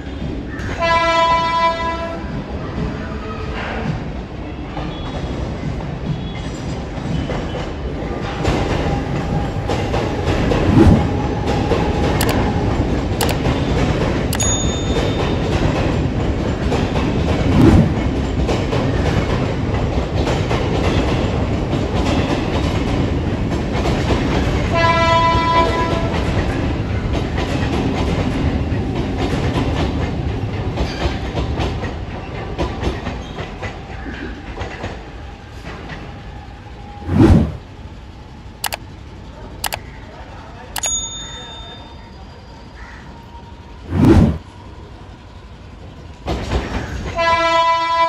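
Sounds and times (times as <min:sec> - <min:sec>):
electric train running on tracks: 0:00.0 - 0:48.0
train horn: 0:00.7 - 0:02.3, 0:24.7 - 0:26.2, 0:47.1 - 0:48.0.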